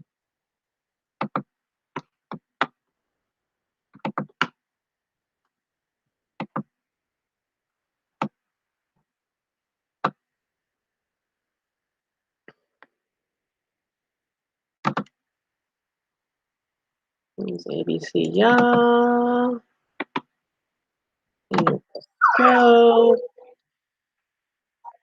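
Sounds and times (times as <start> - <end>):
mouse and keyboard clicks: 1.2 - 2.8, 6.4 - 6.7, 14.8 - 15.2, 20.0 - 20.3.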